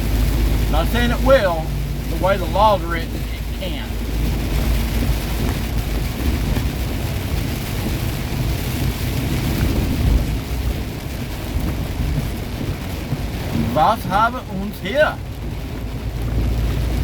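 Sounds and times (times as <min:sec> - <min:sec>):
rain hissing on wet road: 0:00.0 - 0:17.0
truck engine and road rumble: 0:00.0 - 0:17.0.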